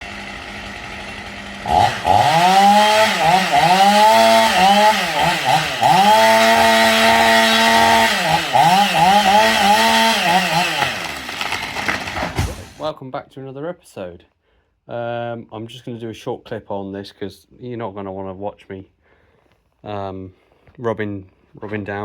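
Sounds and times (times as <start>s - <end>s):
chainsaw engine revving: 0.0s - 12.8s.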